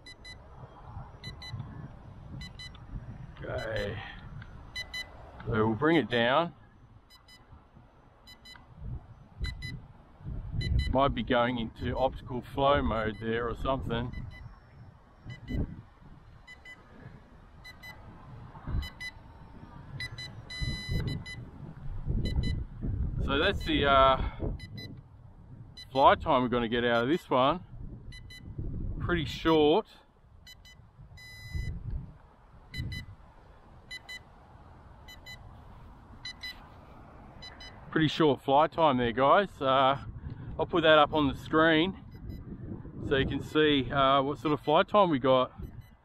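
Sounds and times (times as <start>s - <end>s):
high double warning beeps: 0.0s - 0.5s, 1.1s - 1.6s, 2.4s - 2.8s, 3.5s - 5.2s, 7.0s - 7.6s, 8.2s - 8.7s, 9.4s - 9.9s, 10.5s - 11.0s, 12.9s - 13.4s, 14.0s - 15.8s, 16.4s - 16.9s, 17.6s - 18.0s, 18.7s - 21.5s, 22.2s - 22.7s, 23.4s - 23.8s, 24.5s - 25.0s, 25.7s - 26.2s, 26.9s - 27.3s, 28.1s - 28.6s, 30.4s - 31.8s, 32.7s - 33.1s, 33.9s - 34.3s, 35.1s - 35.5s, 36.2s - 36.8s, 37.4s - 37.9s, 42.0s - 42.5s, 44.5s - 44.9s, 45.5s - 46.0s
wind rumble on microphone: 0.0s - 46.0s
long warning tone: 1.1s - 1.7s, 3.5s - 4.1s, 4.7s - 5.2s, 10.6s - 11.0s, 14.0s - 15.8s, 17.6s - 18.1s, 18.7s - 21.5s, 23.4s - 23.8s, 30.5s - 31.8s, 32.7s - 33.1s, 36.2s - 36.6s
remote controller double beeps: 1.2s - 1.6s, 2.4s - 2.8s, 4.8s - 5.1s, 9.4s - 9.8s, 10.6s - 11.0s, 15.3s - 15.7s, 18.8s - 19.2s, 20.0s - 21.5s, 22.2s - 22.6s, 30.5s - 31.8s, 32.8s - 33.1s, 36.2s - 36.6s, 37.4s - 37.8s, 42.1s - 42.4s, 45.6s - 46.0s
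dull low thumps: 8.4s - 11.1s, 15.3s - 16.8s, 17.6s - 25.9s.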